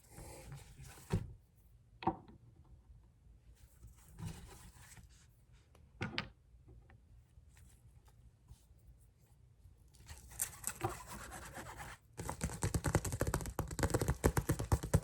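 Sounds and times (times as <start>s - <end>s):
scratchy rubbing on bottles: 10.7s - 12.0s.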